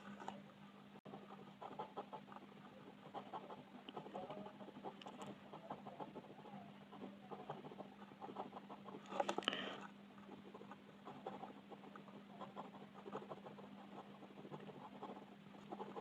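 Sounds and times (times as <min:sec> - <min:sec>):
faint hum: 0:00.0 - 0:16.0
pencil scratching on paper: 0:01.1 - 0:09.4, 0:10.2 - 0:16.0.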